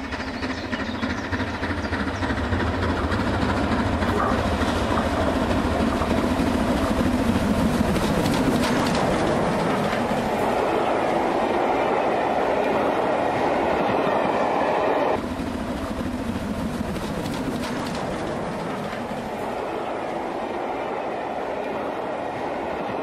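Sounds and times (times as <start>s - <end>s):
wheels clattering over rail joints: 0.0s - 14.4s
distant train running: 0.0s - 23.0s
train coaches rushing past: 0.0s - 23.0s.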